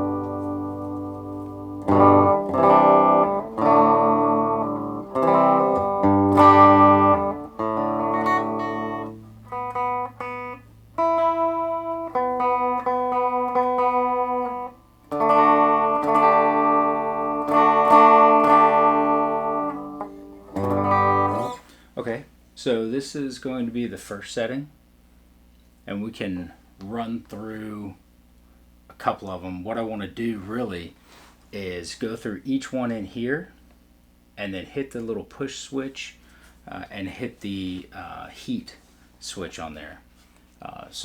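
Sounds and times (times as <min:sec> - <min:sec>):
clean electric guitar with reverb: 0:00.0 - 0:21.6.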